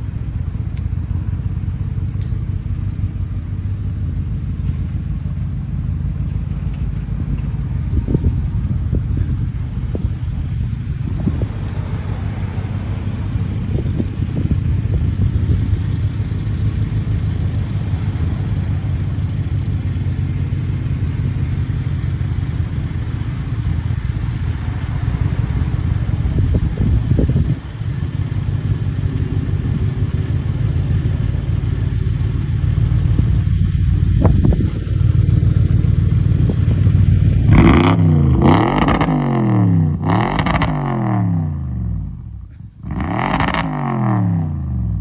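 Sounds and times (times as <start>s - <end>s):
car exhaust deep steady note: 0.0s - 45.0s.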